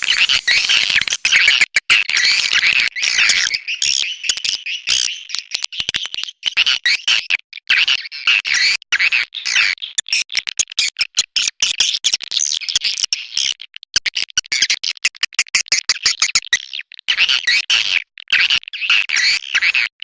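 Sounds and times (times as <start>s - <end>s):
swiftlets twittering: 0.0s - 1.4s.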